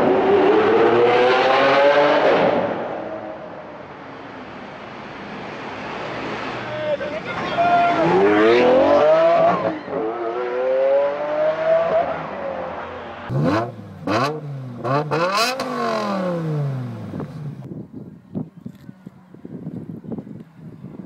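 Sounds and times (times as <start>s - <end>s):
sports car engine revving: 13.2s - 17.7s.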